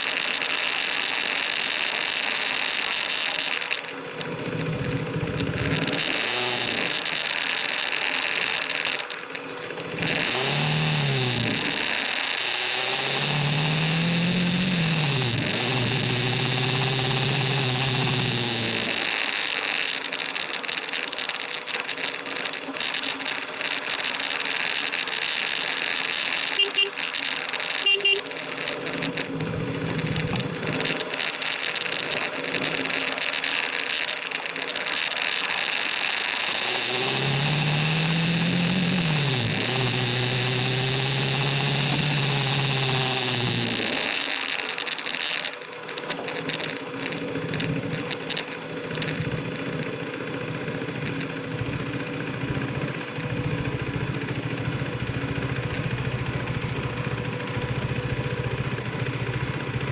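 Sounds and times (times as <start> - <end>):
crackly noise: 0.0 - 59.9
motorcycle engine accelerating: 0.0 - 59.9
short beeps: 26.6 - 27.0, 27.8 - 28.3.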